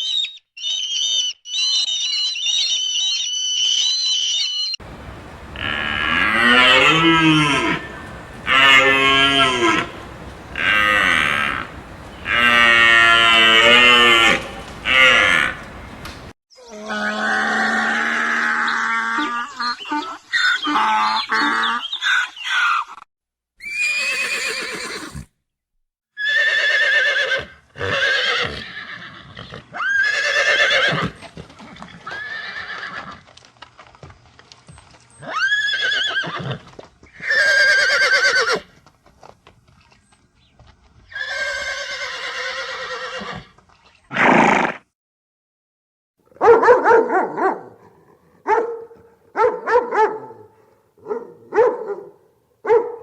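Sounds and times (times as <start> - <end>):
quavering animal calls: 0.0 - 22.8.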